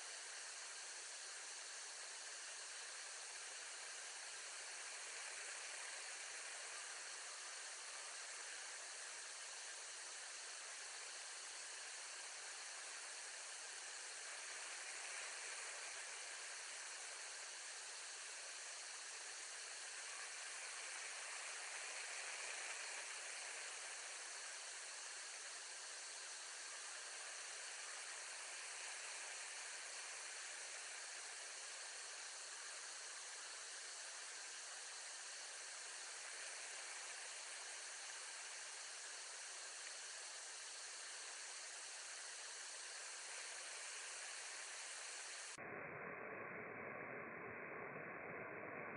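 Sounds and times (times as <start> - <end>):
steady microphone hiss: 0.0 - 48.9.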